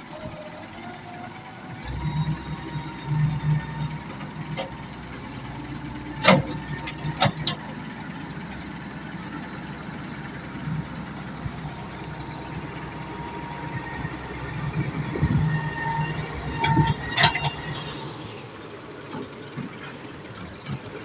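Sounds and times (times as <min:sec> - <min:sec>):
excavator engine running: 0:00.0 - 0:21.0.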